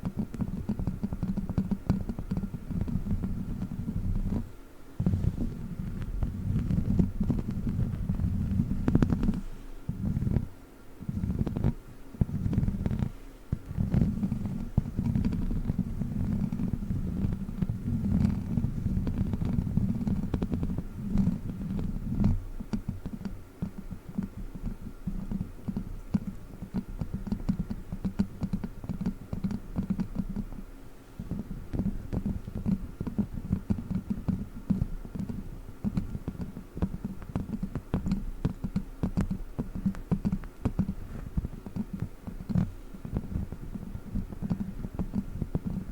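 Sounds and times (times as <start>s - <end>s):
plastic props scratching and tapping: 11.1s - 30.6s, 31.3s - 45.9s.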